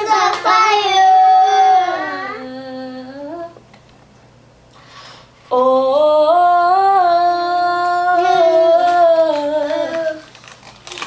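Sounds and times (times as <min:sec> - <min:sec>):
girl singing a long note: 0:00.0 - 0:03.6, 0:05.5 - 0:10.3.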